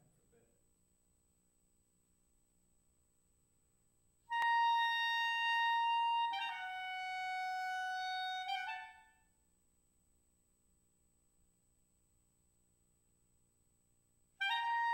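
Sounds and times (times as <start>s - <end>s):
solo clarinet: 4.3s - 9.3s, 14.4s - 14.9s.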